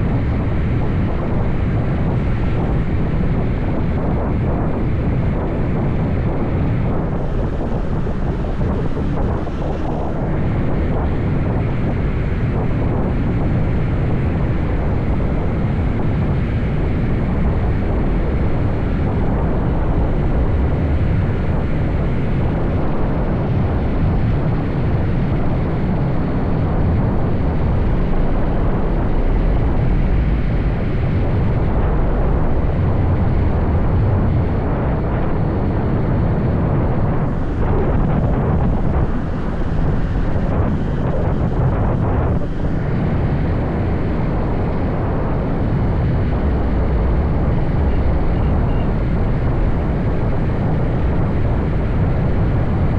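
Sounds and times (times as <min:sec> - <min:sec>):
wind rush on microphone: 0:00.0 - 0:52.9.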